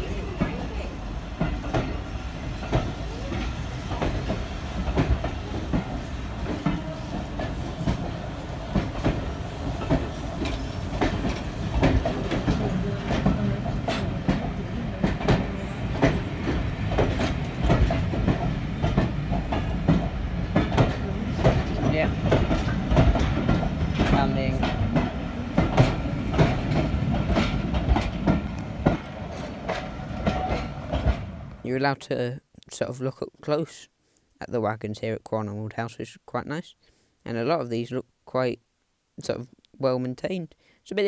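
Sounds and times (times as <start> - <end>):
wheels clicking over rail joints: 0.0 - 31.6
train rumbling: 0.0 - 32.0.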